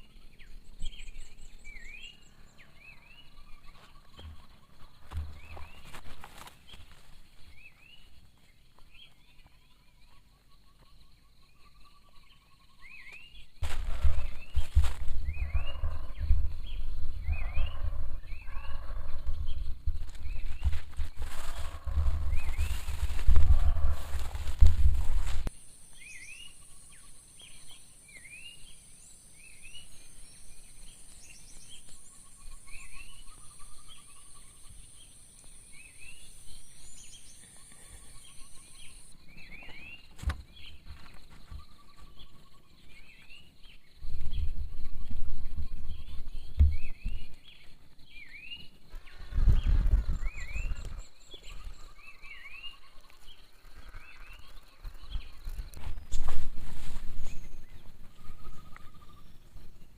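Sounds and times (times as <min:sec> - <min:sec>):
high insect drone: 0:13.6 - 0:40.4.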